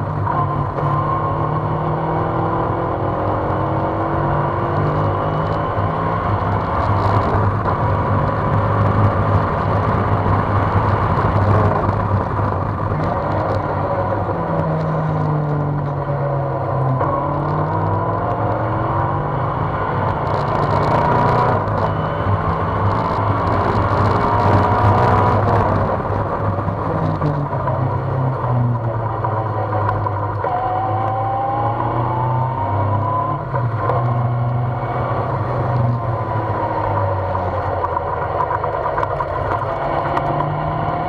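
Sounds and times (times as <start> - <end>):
race car engine revving: 0.0 - 41.0.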